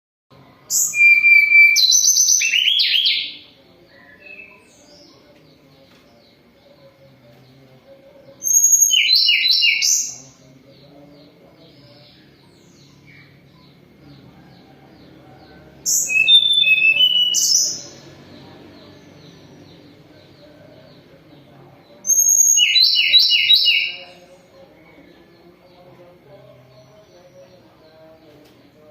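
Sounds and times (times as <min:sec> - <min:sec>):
bird singing rapid high notes: 0:00.7 - 0:05.1, 0:08.4 - 0:10.4, 0:15.9 - 0:21.1, 0:22.0 - 0:24.2.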